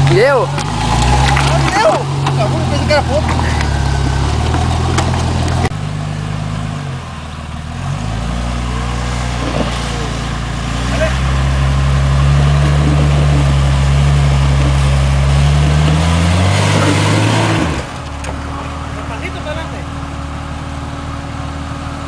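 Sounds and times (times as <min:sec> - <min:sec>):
engine idling: 0:00.0 - 0:16.1, 0:16.7 - 0:22.0.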